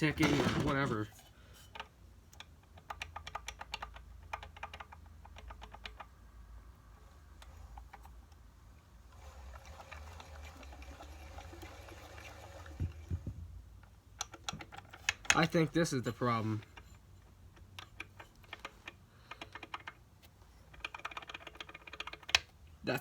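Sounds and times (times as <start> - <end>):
dull thumps: 12.8 - 13.7.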